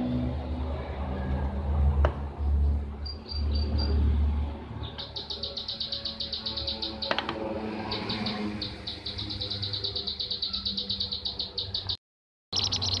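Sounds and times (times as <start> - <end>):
rapid high bird chirps: 4.8 - 13.0.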